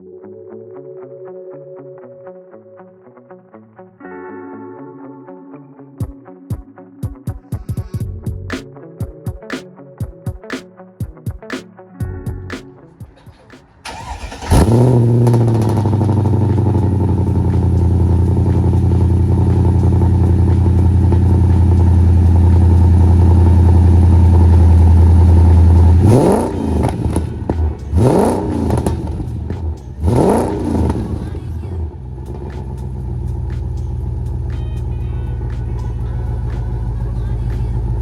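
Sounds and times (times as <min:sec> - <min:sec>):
car engine starting and idling: 0:13.2 - 0:38.0
engine revs blipped: 0:13.2 - 0:38.0.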